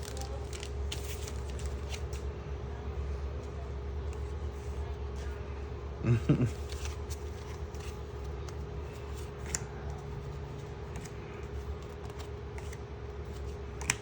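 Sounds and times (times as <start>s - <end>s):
trading cards rustling and clicking: 0.0s - 2.3s, 6.4s - 14.0s.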